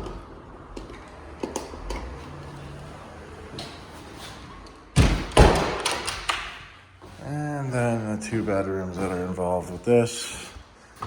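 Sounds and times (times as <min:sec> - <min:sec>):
door shutting heavy thumps: 0:05.0 - 0:05.9.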